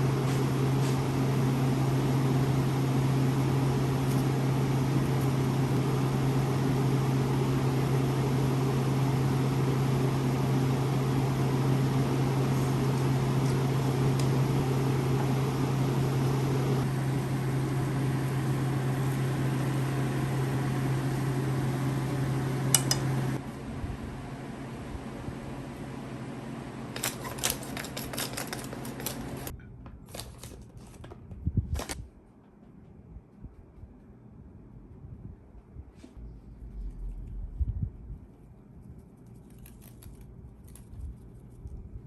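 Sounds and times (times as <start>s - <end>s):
microwave oven humming: 0.0s - 32.0s
microwave click: 22.2s - 23.3s.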